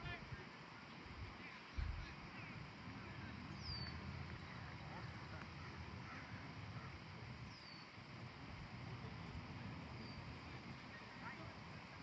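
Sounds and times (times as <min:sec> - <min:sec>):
insects chirping: 0:00.0 - 0:12.0
wind rumble on microphone: 0:01.2 - 0:02.1.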